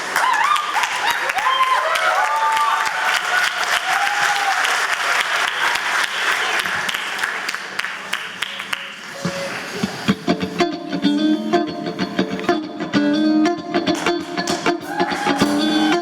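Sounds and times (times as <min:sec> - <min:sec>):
audience applauding: 0:00.0 - 0:10.1
music of plucked notes: 0:09.2 - 0:16.0.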